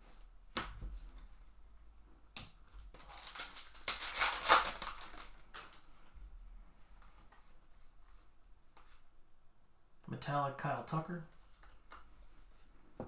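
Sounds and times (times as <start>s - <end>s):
foil wrapper crinkling: 2.9s - 5.9s.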